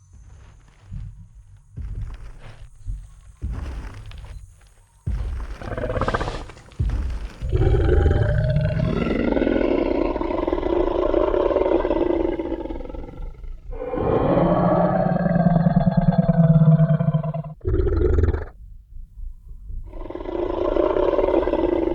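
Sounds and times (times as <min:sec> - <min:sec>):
heavy footstep thumps: 0:00.0 - 0:10.7
deep monster roar: 0:07.4 - 0:18.5, 0:19.9 - 0:21.9.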